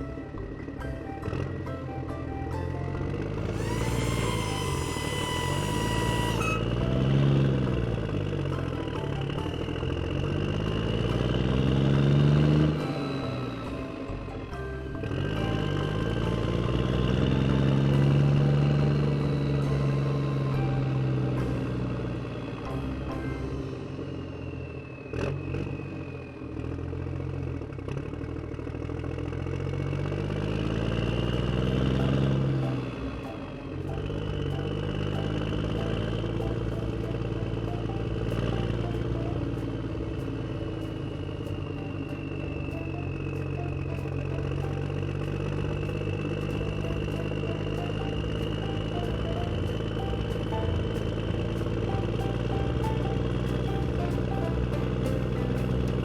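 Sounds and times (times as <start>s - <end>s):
engine revving: 0.0s - 56.0s
held high tone: 3.4s - 7.9s.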